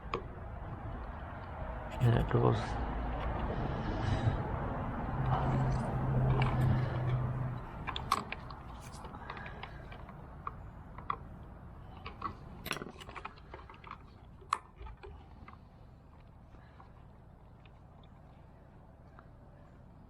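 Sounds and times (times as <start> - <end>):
low hum: 0.0 - 20.0
plastic and metal parts clicking: 5.6 - 18.4.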